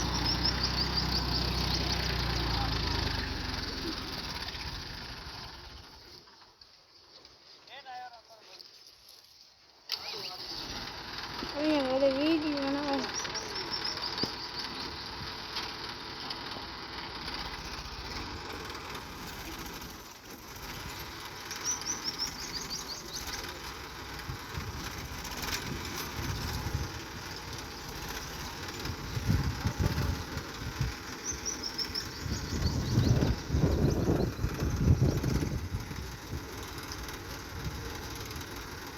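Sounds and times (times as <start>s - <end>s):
small bird chirping: 0.0s - 2.4s, 12.7s - 15.3s, 21.4s - 23.6s, 31.0s - 35.4s
outdoor background noise: 0.0s - 38.9s
low rumbling bursts: 23.9s - 38.0s.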